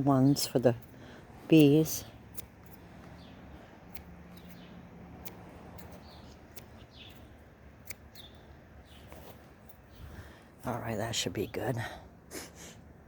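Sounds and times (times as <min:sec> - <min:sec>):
scissors snipping stems: 0:00.0 - 0:09.9
bird chirps: 0:04.3 - 0:04.8, 0:05.8 - 0:10.1.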